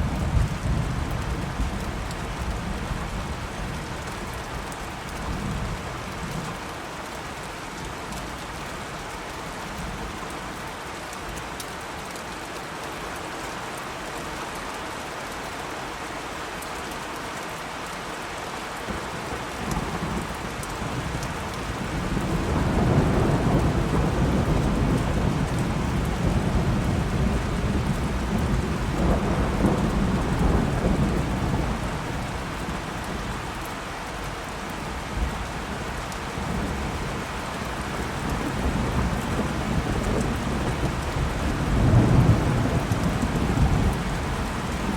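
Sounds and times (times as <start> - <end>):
steady rain: 0.0 - 44.9
rolling thunder: 21.0 - 33.2, 38.0 - 44.9.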